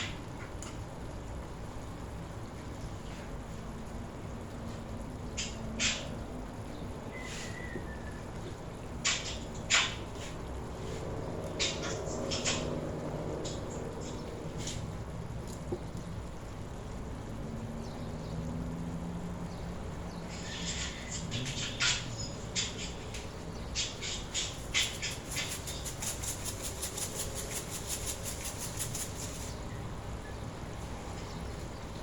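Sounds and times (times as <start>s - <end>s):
low steady hum: 0.0s - 32.0s
sharp tapping strokes: 11.6s - 12.8s, 20.4s - 29.6s.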